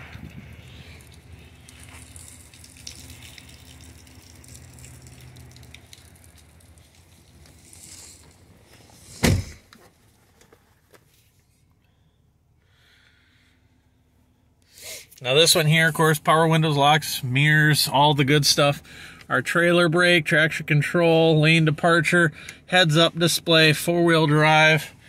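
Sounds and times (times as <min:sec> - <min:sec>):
low steady hum: 0:00.0 - 0:25.0
car door shutting: 0:08.8 - 0:09.9.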